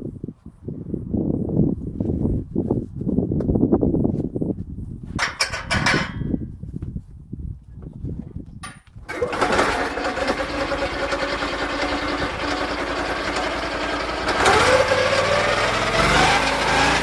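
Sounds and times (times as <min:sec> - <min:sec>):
sawmill petrol engine running: 0:09.1 - 0:17.0.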